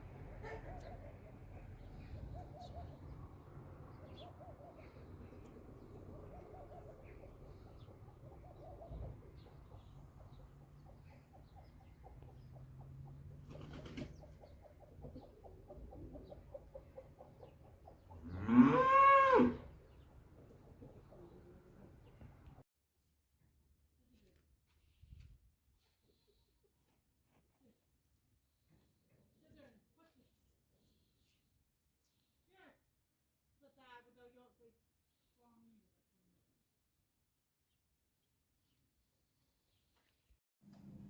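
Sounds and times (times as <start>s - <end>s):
cow mooing: 18.2s - 19.7s.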